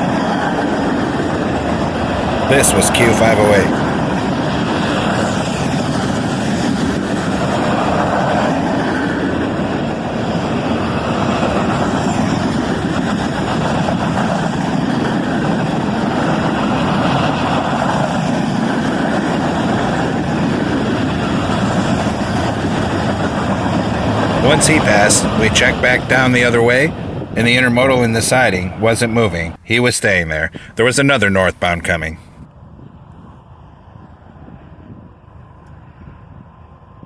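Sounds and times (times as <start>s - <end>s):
train wheels rolling on rail: 0.0s - 29.6s.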